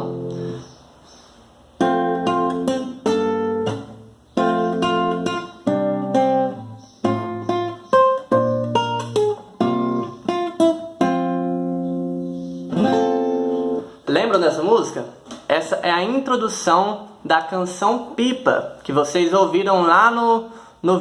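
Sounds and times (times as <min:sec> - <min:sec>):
acoustic guitar playing: 0:00.0 - 0:00.9, 0:01.7 - 0:14.9.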